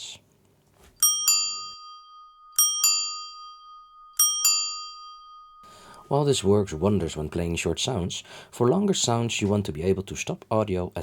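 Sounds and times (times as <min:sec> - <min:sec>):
bell double dings: 0:01.0 - 0:06.0.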